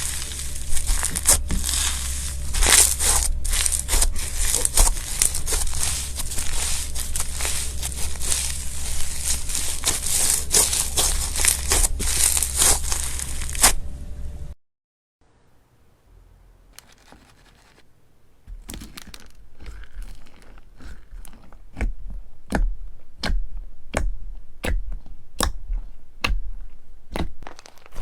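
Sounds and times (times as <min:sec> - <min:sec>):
crunchy slime crackling: 0:00.0 - 0:13.9, 0:18.5 - 0:28.0.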